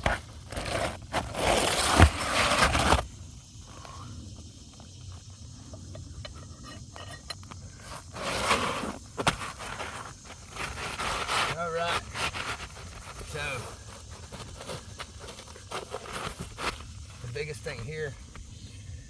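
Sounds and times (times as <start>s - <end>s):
hatchet scraping roof shingle: 0.0s - 3.1s, 6.3s - 17.8s.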